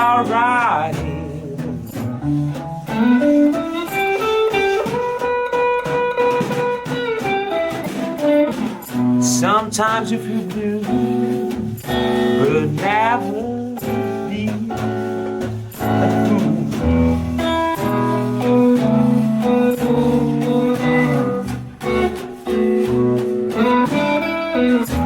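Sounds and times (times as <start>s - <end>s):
blues guitar playing: 0.0s - 25.0s.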